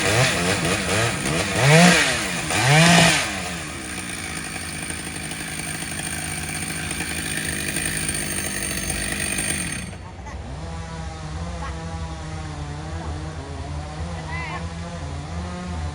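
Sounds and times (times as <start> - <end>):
chainsaw engine revving: 0.0 - 10.1.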